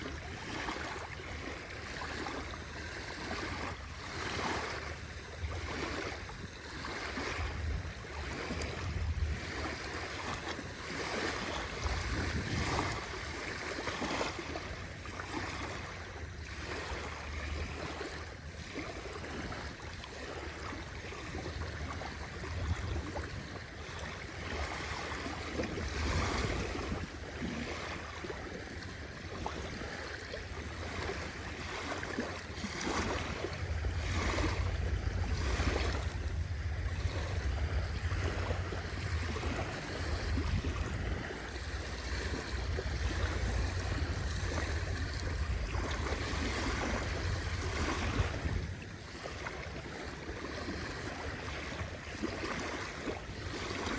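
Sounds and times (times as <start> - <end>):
sea waves washing onto shore: 0.0 - 53.9
low rumble: 33.0 - 48.9.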